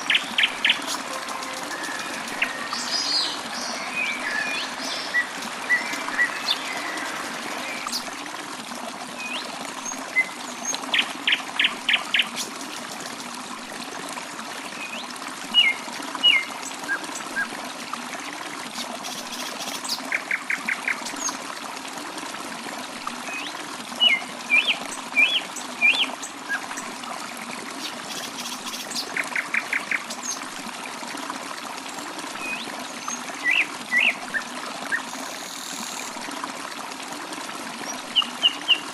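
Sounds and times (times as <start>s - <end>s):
birds chirping: 0.0s - 8.1s
water trickling: 0.0s - 38.9s.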